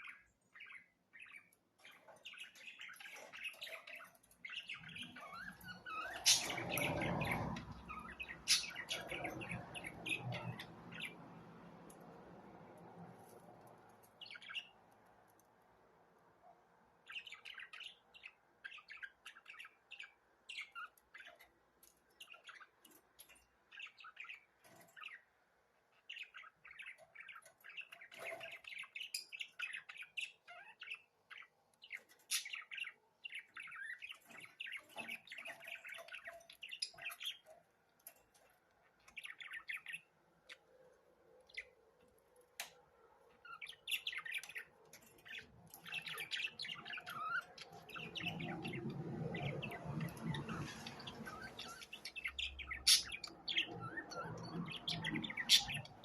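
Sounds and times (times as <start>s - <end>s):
budgerigars chirping: 0.0s - 11.5s, 26.0s - 37.5s, 43.4s - 56.0s.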